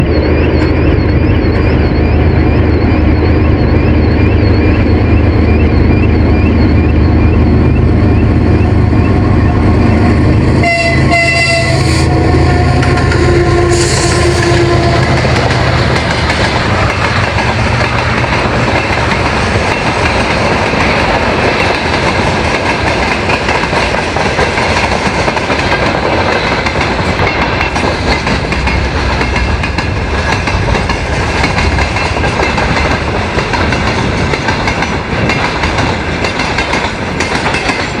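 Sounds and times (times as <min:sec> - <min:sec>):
freight train wheels clattering: 0:12.2 - 0:38.0.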